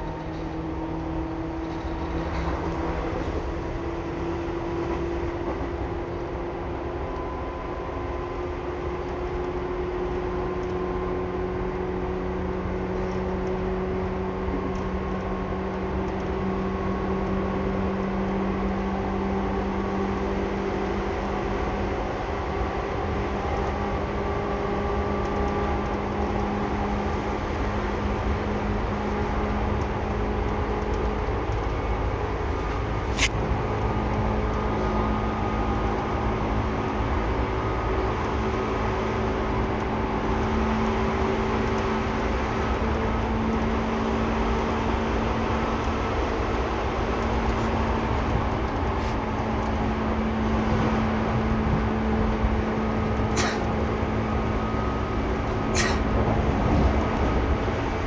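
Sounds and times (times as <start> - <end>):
train motor hum: 0.0 - 58.0
train rolling rumble: 0.0 - 58.0
sharp click: 33.1 - 33.4.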